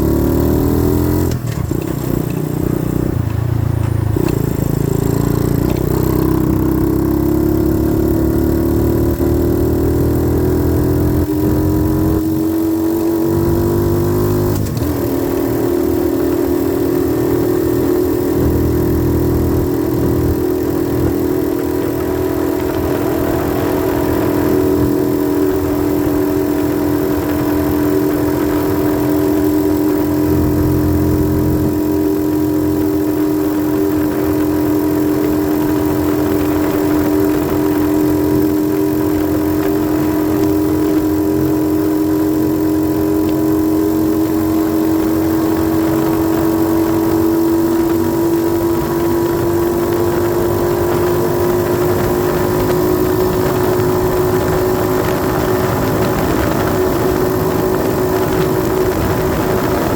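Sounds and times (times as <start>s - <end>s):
dirt bike engine running: 0.0s - 59.9s.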